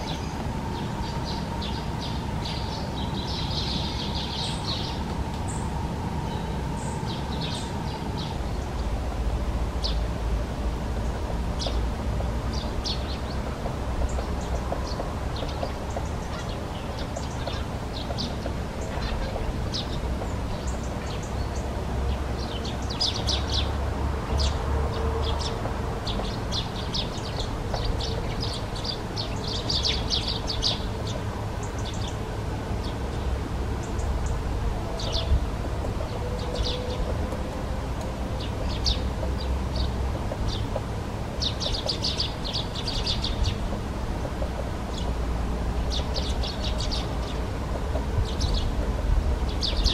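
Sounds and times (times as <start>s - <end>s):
high-pitched bird calls: 14.1s - 21.6s.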